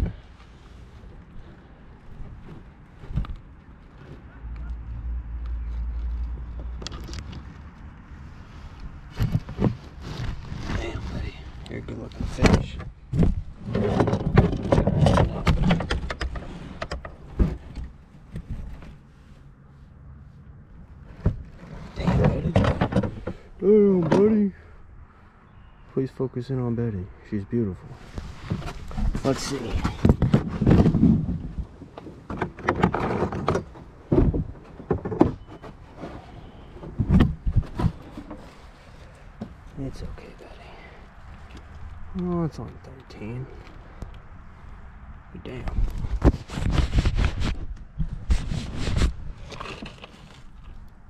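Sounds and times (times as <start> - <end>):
handling knocks and thumps: 12.1 - 19.0, 21.1 - 24.4, 28.4 - 36.2, 36.8 - 39.7.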